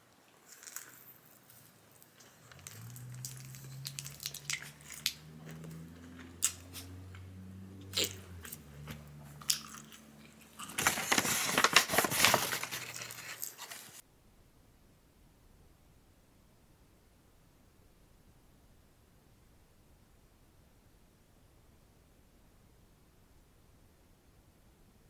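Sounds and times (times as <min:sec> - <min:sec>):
person crunching fried food: 0:00.4 - 0:07.1, 0:07.8 - 0:10.8.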